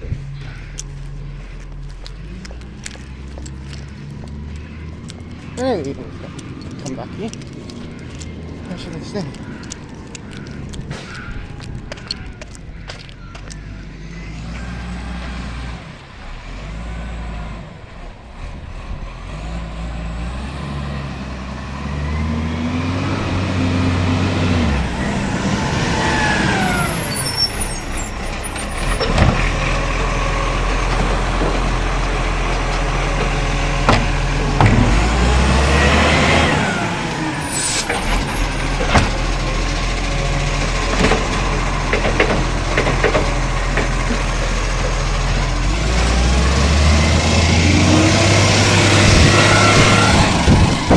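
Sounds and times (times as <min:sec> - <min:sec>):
diesel engine revving: 0:00.0 - 0:50.9
sharp knocks: 0:28.9 - 0:35.4
air brakes hissing: 0:36.8 - 0:39.5.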